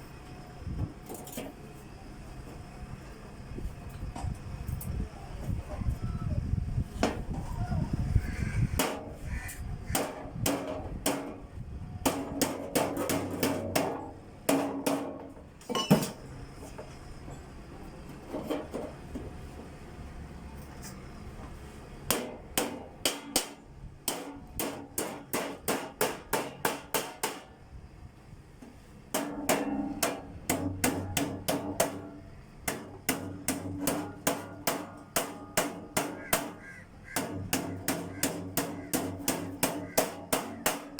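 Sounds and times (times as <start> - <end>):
hammer striking sheet metal: 22.1 - 27.5, 29.1 - 36.6, 37.2 - 40.9.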